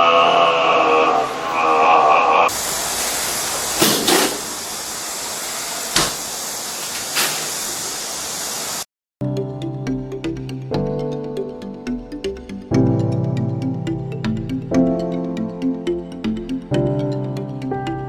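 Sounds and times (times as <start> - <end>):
steady hiss: 2.5 - 8.8
music: 9.2 - 18.0.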